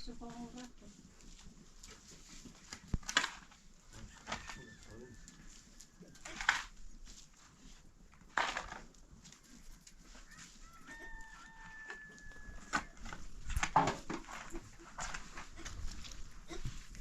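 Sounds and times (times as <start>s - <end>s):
rooster crowing: 4.0s - 6.2s, 10.1s - 13.3s.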